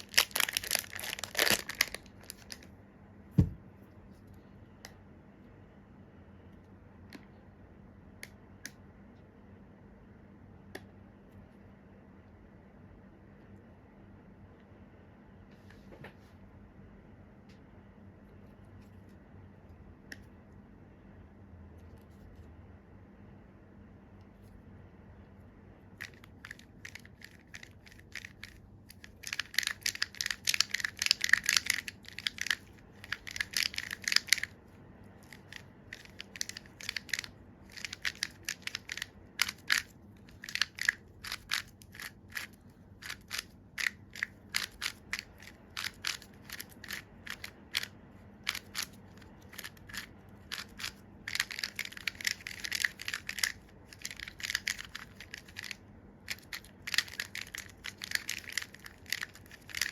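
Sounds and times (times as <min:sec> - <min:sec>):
plastic puzzle clicking: 0:26.0 - 0:34.5, 0:35.2 - 0:59.9.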